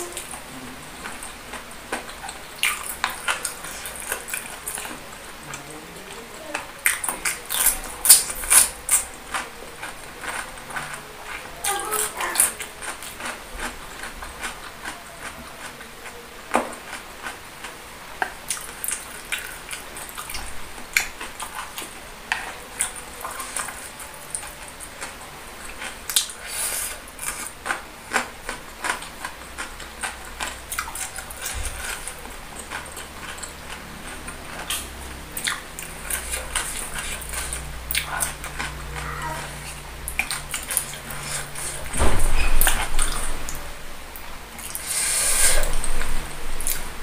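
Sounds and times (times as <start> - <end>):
chewing with crackly clicks: 1.0 - 26.4, 27.2 - 41.7.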